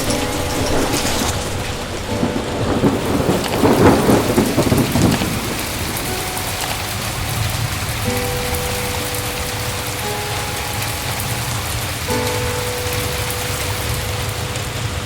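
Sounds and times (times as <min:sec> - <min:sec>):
heavy rain: 0:00.0 - 0:15.0
thunder rolling: 0:00.0 - 0:15.0.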